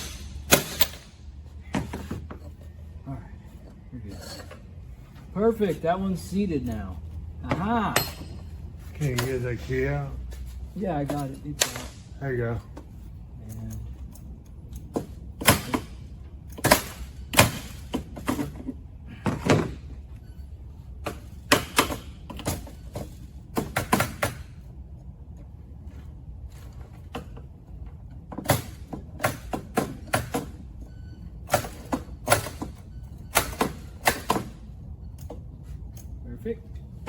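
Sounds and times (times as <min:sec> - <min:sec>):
metal tools knocking and clanking: 0:03.5 - 0:05.8, 0:06.4 - 0:09.8, 0:11.0 - 0:20.0.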